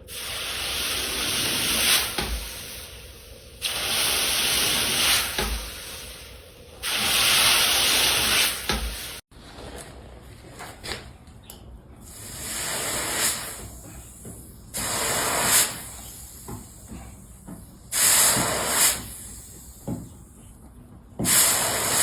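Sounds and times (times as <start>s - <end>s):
hissing blasts: 0.1s - 9.2s, 12.1s - 13.9s, 14.7s - 16.5s, 17.9s - 19.8s, 21.3s - 22.0s.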